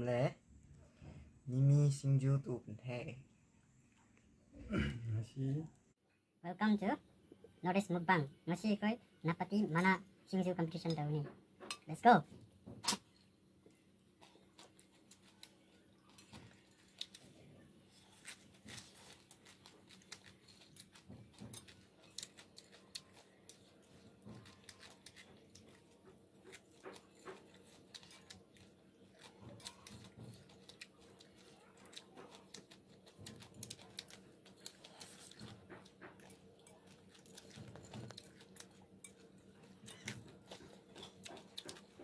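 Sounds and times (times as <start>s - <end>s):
people chewing crunchy salad: 12.8s - 42.0s.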